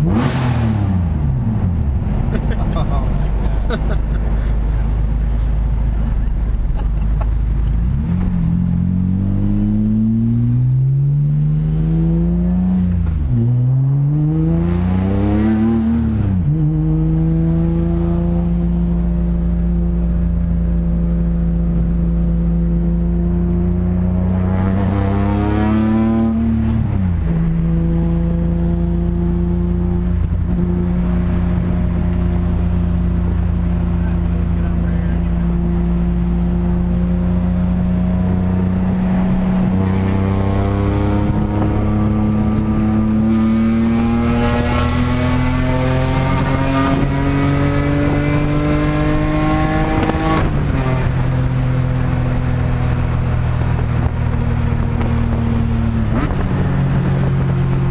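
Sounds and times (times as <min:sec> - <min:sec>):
car engine accelerating: 0:00.0 - 0:57.9.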